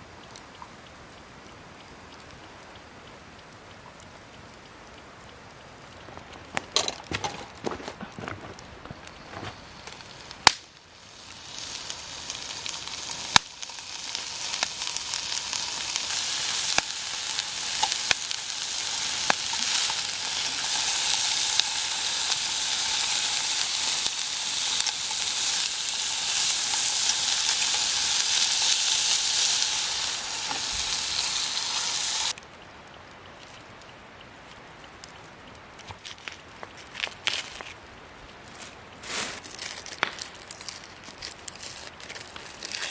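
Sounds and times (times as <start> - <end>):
food sizzling in a pan: 9.6 - 32.4.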